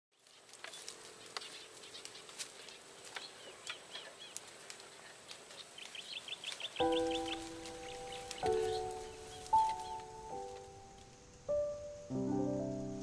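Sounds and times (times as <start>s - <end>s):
bird chirps: 0.2s - 4.4s, 5.0s - 13.0s
faint clicks: 0.5s - 11.1s
sustained music chord: 6.8s - 13.0s.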